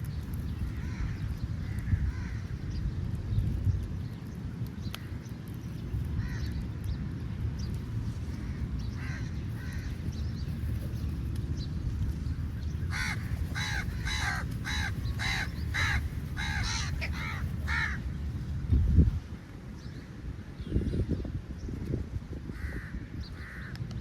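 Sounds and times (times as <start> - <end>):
crow cawing: 12.9 - 18.0.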